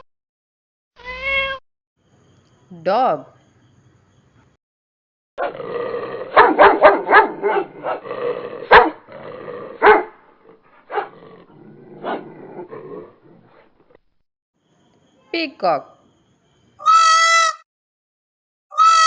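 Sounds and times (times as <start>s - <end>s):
dog barking: 5.4s - 5.6s, 6.3s - 9.1s, 9.7s - 10.2s, 10.8s - 11.2s, 12.0s - 13.7s.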